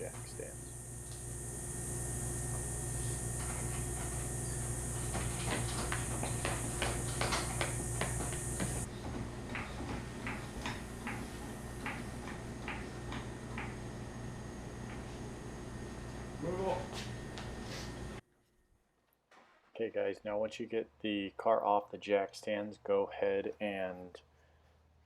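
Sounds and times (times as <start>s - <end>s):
steady high hiss: 0.0s - 8.9s.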